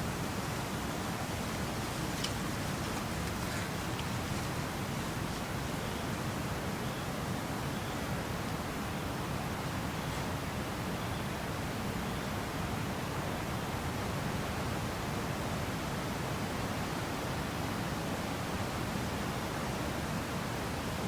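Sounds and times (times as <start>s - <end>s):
wind rustling wheat stalks: 0.0s - 6.7s.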